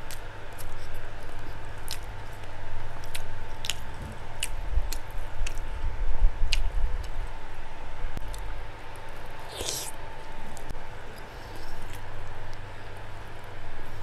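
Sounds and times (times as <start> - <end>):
person chewing food: 0.0 - 7.2, 8.2 - 13.1.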